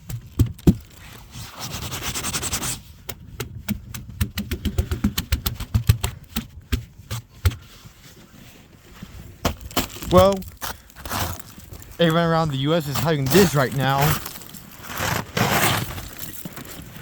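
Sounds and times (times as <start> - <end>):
ice cracking and crunching: 9.4 - 17.0
grating rush of ice: 9.7 - 17.0.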